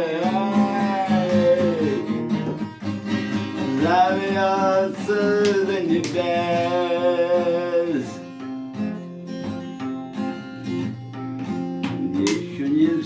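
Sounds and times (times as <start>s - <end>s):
man singing: 0.0s - 2.5s, 3.5s - 8.4s, 11.9s - 13.0s
acoustic guitar chords: 0.0s - 13.0s.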